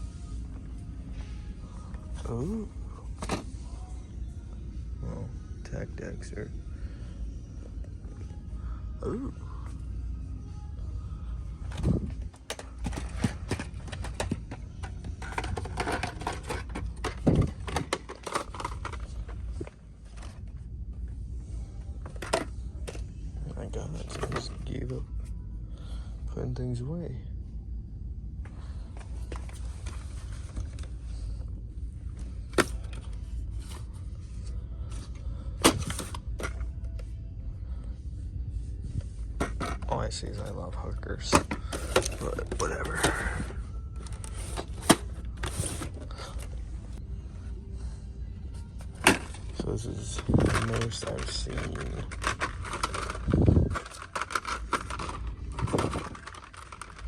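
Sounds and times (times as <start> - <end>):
steady low hum: 0.0 - 57.0
toy packaging rustling and clicking: 11.6 - 20.6, 24.0 - 24.8, 32.2 - 33.9, 35.1 - 36.7, 41.3 - 46.6, 48.8 - 57.0.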